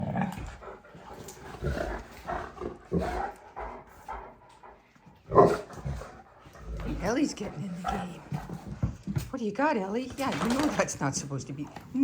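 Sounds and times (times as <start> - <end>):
dogs vocalizing during play: 0.0 - 9.2.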